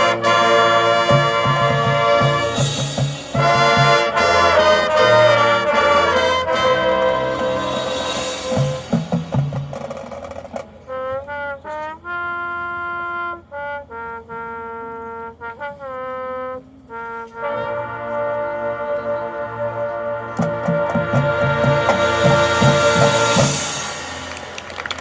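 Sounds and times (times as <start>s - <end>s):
percussion hits: 0.0s - 10.8s, 20.3s - 25.0s
marching band brass playing: 0.0s - 25.0s.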